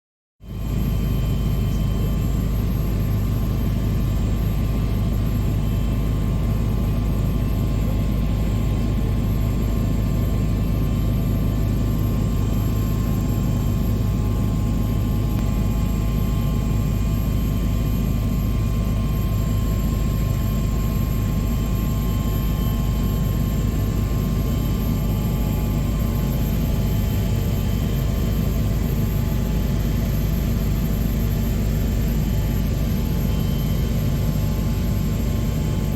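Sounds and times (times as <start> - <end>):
helicopter rotor and engine drone: 0.4 - 35.9
high turbine whine: 0.4 - 35.9.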